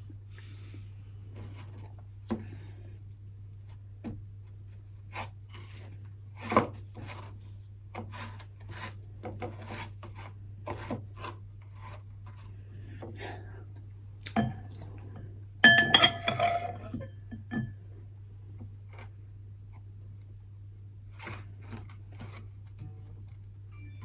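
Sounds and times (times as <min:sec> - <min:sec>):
low electrical hum: 0:00.0 - 0:24.0
utensils knocking and scraping: 0:15.6 - 0:17.7.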